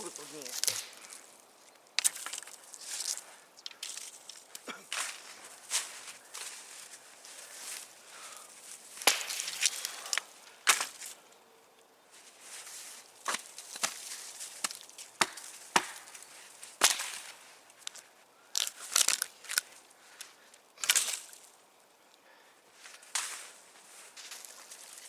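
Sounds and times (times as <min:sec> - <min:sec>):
machete chopping wood: 0:09.0 - 0:09.7, 0:10.7 - 0:11.0, 0:14.6 - 0:16.2, 0:16.8 - 0:17.3.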